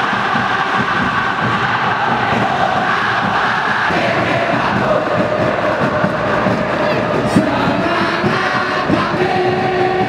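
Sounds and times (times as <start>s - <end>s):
crowd chanting loudly: 0.0s - 10.0s.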